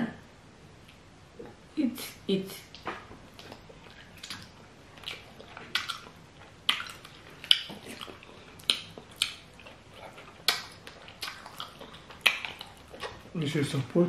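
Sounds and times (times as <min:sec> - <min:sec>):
loud open-mouthed chewing: 0:02.6 - 0:13.4
wet lip smacks: 0:02.7 - 0:09.6.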